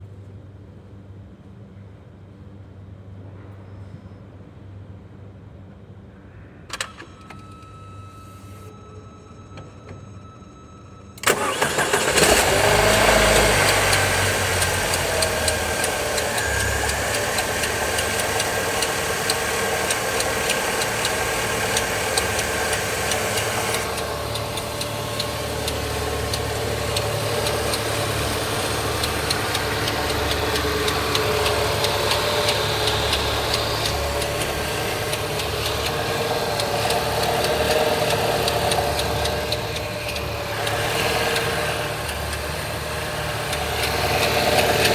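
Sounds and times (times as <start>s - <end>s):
car engine starting and idling: 11.2s - 44.9s
irregular engine ticking: 11.2s - 44.9s.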